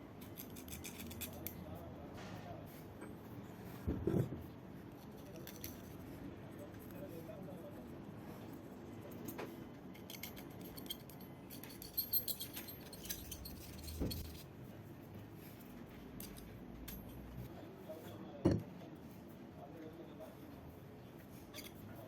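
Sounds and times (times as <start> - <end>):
metal tools clinking: 0.2 - 1.6, 9.2 - 14.4, 16.2 - 17.4, 21.5 - 22.0.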